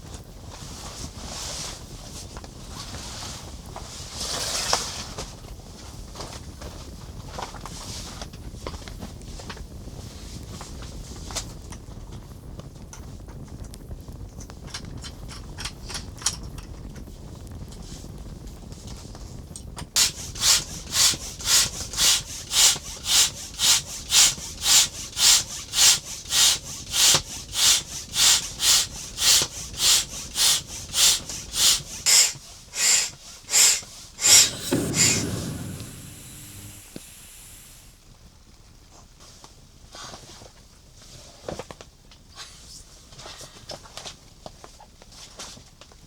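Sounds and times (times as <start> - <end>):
hand saw cutting wood: 20.0 - 37.8.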